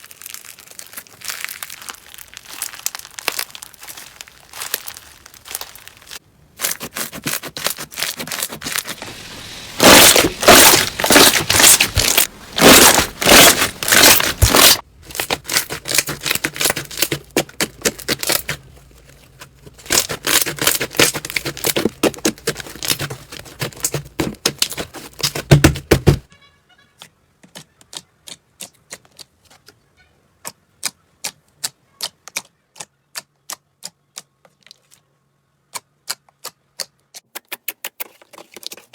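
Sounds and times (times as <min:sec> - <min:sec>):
slime crackling and popping: 0:00.0 - 0:18.6, 0:19.8 - 0:26.1.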